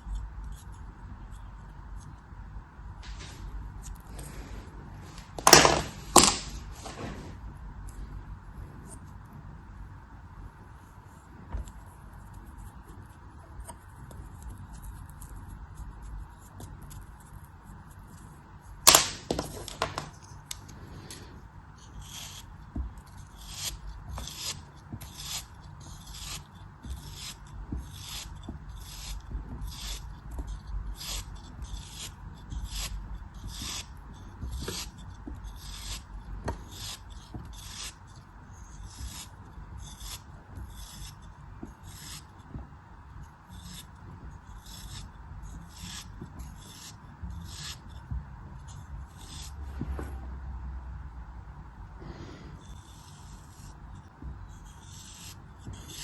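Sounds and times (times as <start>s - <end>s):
knife cutting soft material: 3.0s - 8.0s, 18.9s - 42.6s, 43.4s - 48.0s.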